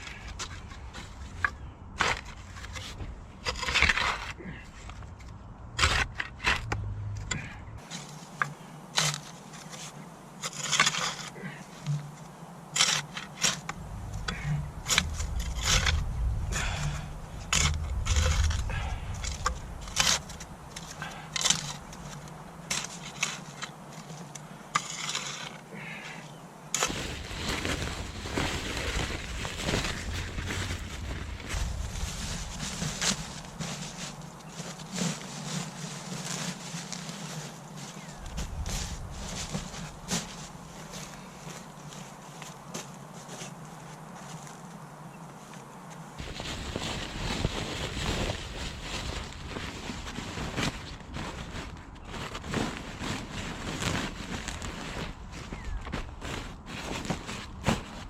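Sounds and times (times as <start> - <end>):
log rounds knocking and scraping: 0.0 - 26.0, 26.7 - 44.8.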